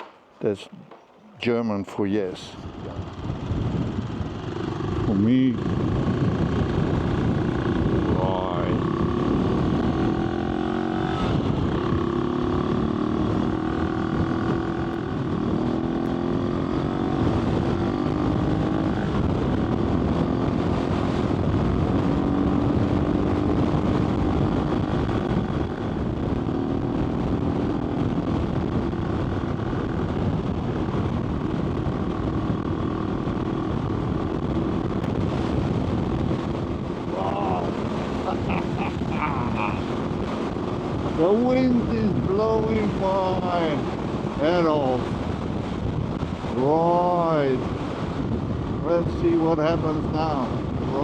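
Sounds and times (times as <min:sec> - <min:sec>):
wind rushing over microphone: 0:00.0 - 0:51.0
motorcycle engine running: 0:00.8 - 0:47.1.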